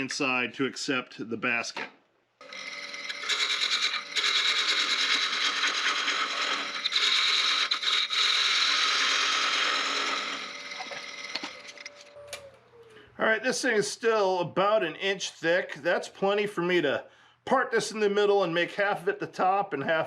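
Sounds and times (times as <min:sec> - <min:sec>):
lathe motor hum: 0:02.4 - 0:12.0
tool scraping spinning wood: 0:02.4 - 0:12.0.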